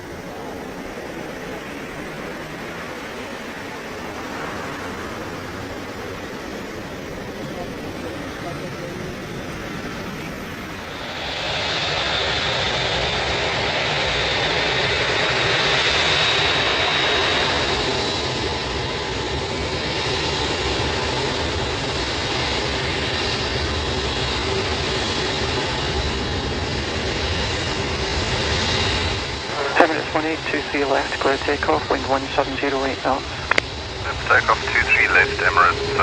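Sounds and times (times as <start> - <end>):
jet engines running: 0.0 - 36.0
high whine: 29.4 - 36.0.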